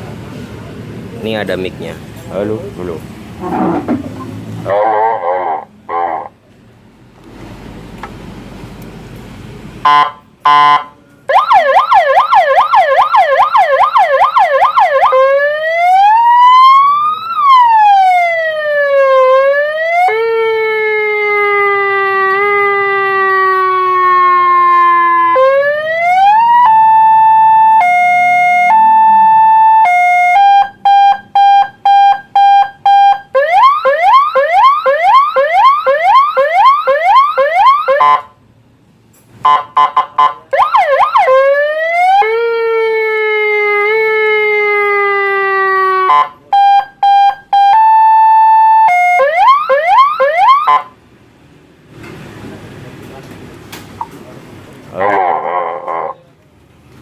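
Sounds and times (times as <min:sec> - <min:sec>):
megaphone electronic siren: 0:09.9 - 0:38.3, 0:39.5 - 0:51.0.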